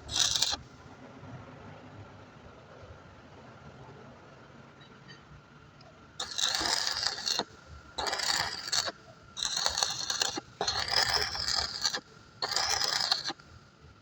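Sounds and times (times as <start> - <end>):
scraping on metal: 0.0 - 0.6, 6.2 - 13.4.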